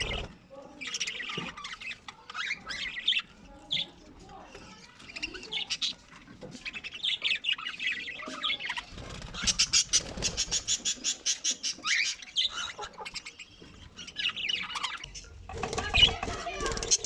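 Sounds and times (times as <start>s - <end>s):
budgerigars chirping and squawking: 0.0s - 17.0s
rapid rasping bird calls: 6.9s - 17.0s.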